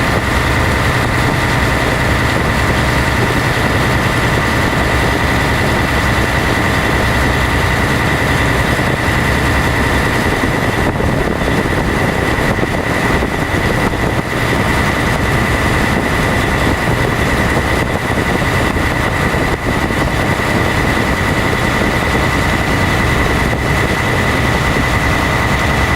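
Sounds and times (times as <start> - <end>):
boat engine droning: 0.0 - 25.9
high whine: 0.0 - 25.9
hiss of wind and water: 0.0 - 25.9.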